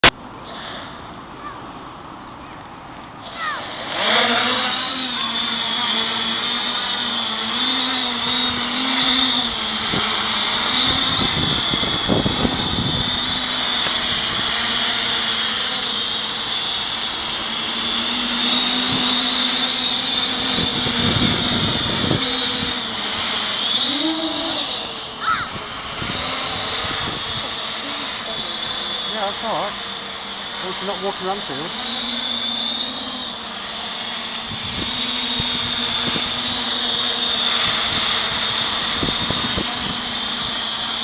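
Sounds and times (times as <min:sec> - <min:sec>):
drone propellers whining: 0:00.0 - 0:41.0
wind buffeting microphone: 0:08.5 - 0:15.1, 0:20.1 - 0:23.2, 0:25.3 - 0:27.8, 0:34.4 - 0:41.0.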